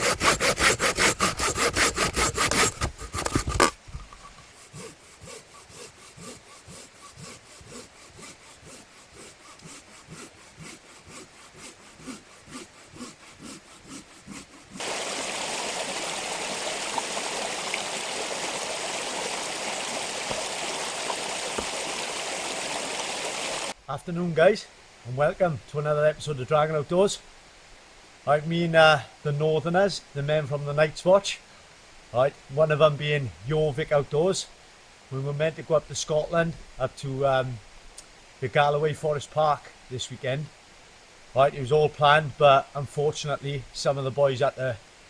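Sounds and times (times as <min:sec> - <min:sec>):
hand saw cutting firewood: 0:00.0 - 0:15.0, 0:21.5 - 0:21.8
flowing stream rushing: 0:04.8 - 0:23.8.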